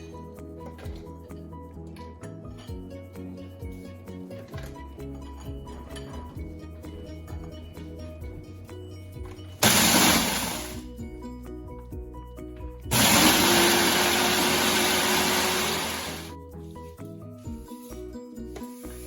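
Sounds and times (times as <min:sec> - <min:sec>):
electric blender grinding: 0:09.6 - 0:10.8, 0:12.9 - 0:16.3.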